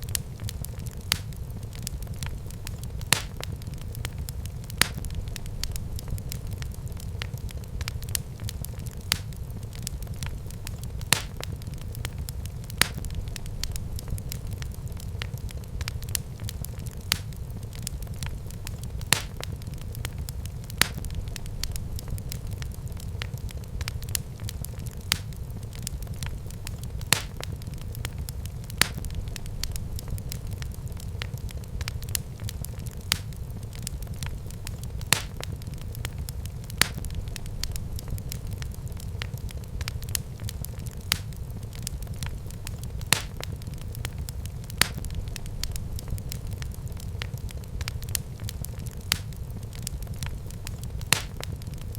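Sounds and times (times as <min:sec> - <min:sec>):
low rumble of burning: 0:00.0 - 0:51.9
wood fire crackling and popping: 0:00.0 - 0:51.9.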